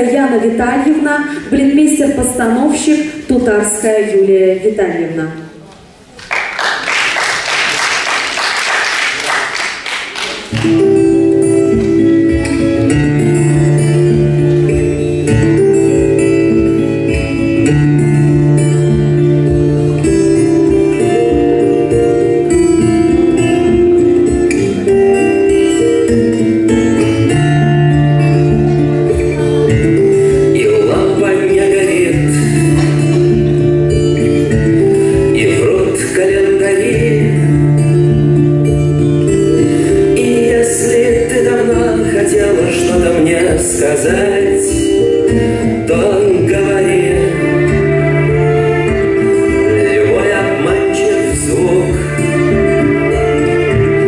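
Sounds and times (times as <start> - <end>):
audience applauding: 6.1 - 11.0
song with guitar and bass: 10.5 - 54.0.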